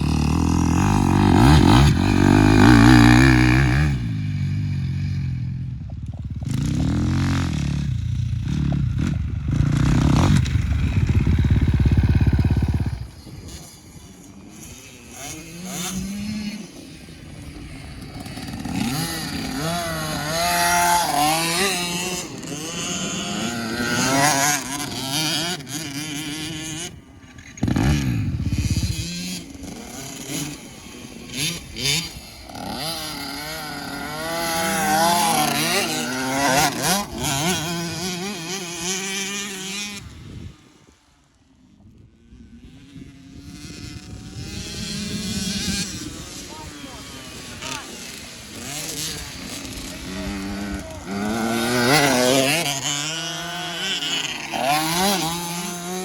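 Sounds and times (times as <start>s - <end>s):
dirt bike engines revving: 0.0s - 56.0s
low rumble: 4.1s - 13.4s.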